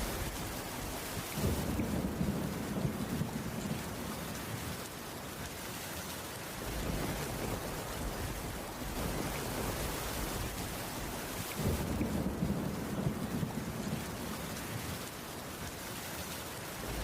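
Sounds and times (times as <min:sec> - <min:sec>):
thunder rumbling: 0:00.0 - 0:04.9, 0:06.6 - 0:15.0, 0:16.8 - 0:17.0
heavy rain falling: 0:00.0 - 0:17.0.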